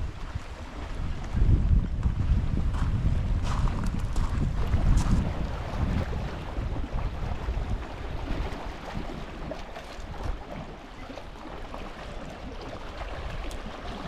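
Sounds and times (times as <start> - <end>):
wind rumbling on microphone: 0.0 - 14.0
water washing: 3.9 - 14.0.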